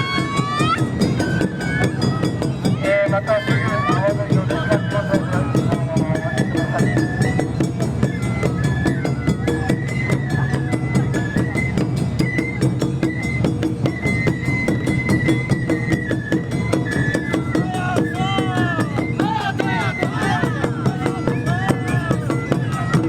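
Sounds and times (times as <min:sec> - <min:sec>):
clacking percussion: 0:00.0 - 0:23.0
steady drumming: 0:00.0 - 0:23.0.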